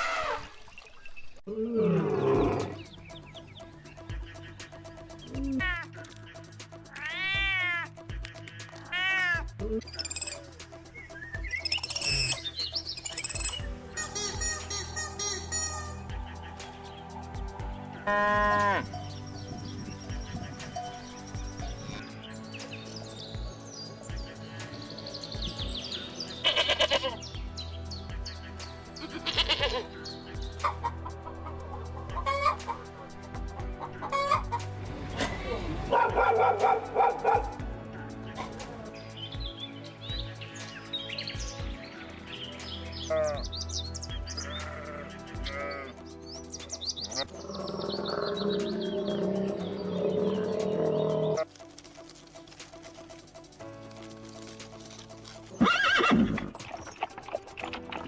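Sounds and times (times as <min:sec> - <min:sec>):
background music with steady beat: 0:01.8 - 0:58.0
high-pitched chirps: 0:02.2 - 0:22.8
chickens clucking: 0:30.6 - 0:33.1, 0:33.7 - 0:34.6.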